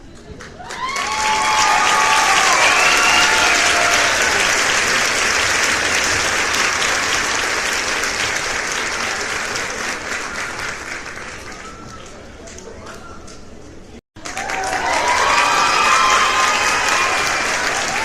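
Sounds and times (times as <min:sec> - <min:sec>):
crowd applause: 0:00.1 - 0:12.6, 0:14.2 - 0:18.0
voices cheering: 0:00.6 - 0:05.1, 0:14.2 - 0:18.0.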